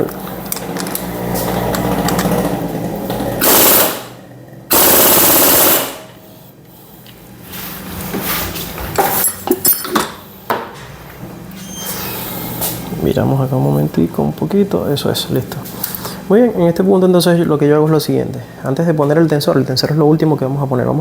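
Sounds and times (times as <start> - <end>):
impact wrench bursts: 1.8 - 6.2
tools clicking and knocking: 9.0 - 10.2.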